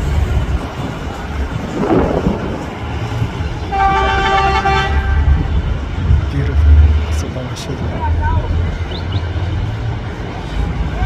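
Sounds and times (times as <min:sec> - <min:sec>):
low rumble: 0:00.0 - 0:07.2
horn steady note: 0:03.7 - 0:05.6.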